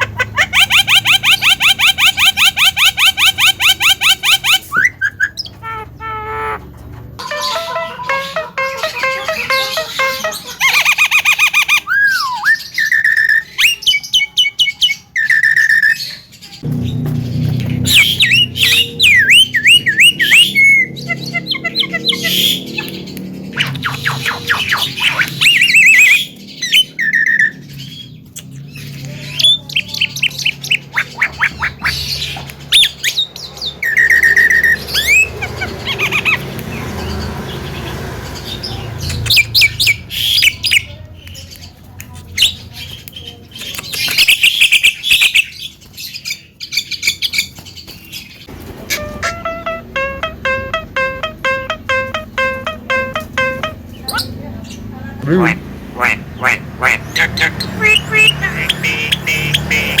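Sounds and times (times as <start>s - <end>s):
myna bird singing: 0.0s - 60.0s.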